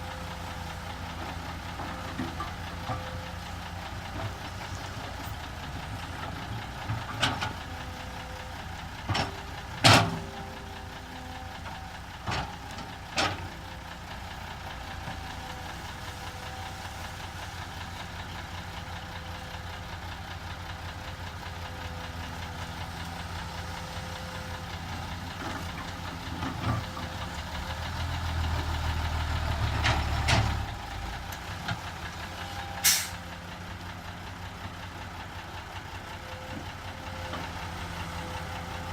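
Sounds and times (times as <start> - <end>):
excavator diesel engine running: 0.0 - 38.9
metal clanks and knocks: 9.0 - 10.4.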